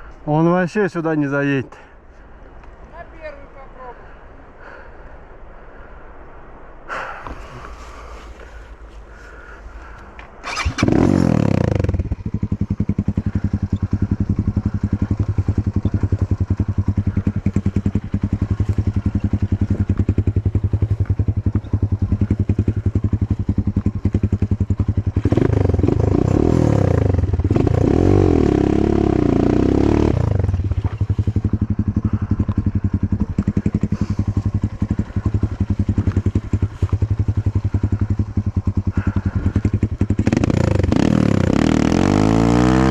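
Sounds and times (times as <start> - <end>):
motorcycle engine starting and revving: 10.2 - 42.9.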